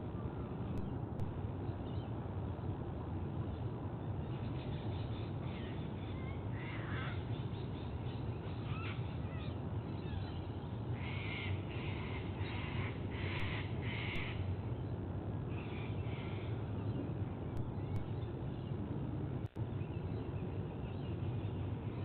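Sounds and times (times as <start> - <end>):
steady low rumble: 0.0 - 22.0
bird calling: 4.4 - 14.5.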